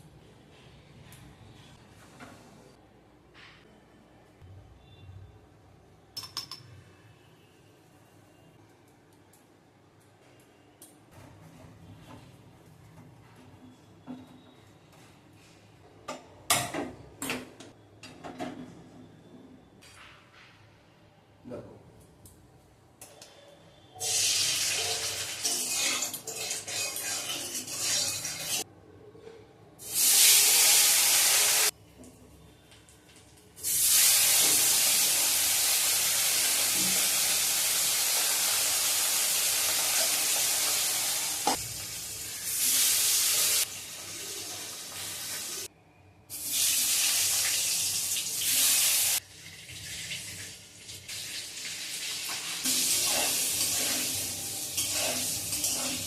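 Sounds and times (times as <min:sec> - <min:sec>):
water running from a tap: 0:46.5 - 0:56.0.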